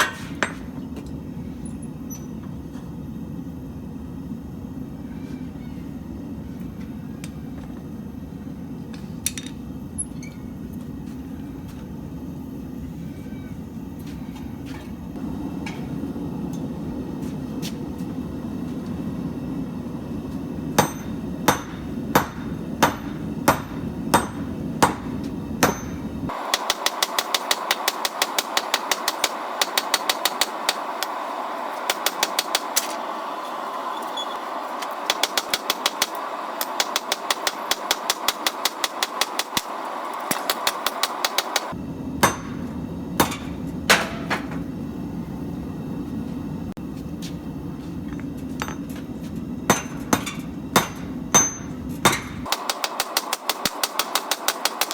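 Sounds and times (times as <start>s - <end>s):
hammer blows on anvil: 20.8s - 31.2s, 40.3s - 44.6s, 49.7s - 54.9s.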